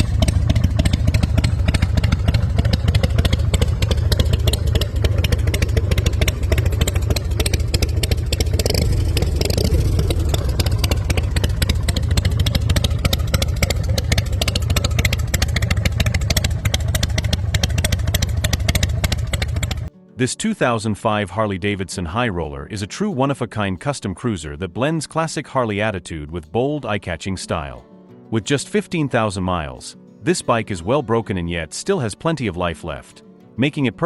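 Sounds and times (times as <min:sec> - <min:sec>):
motorcycle engine running: 0:00.0 - 0:19.9.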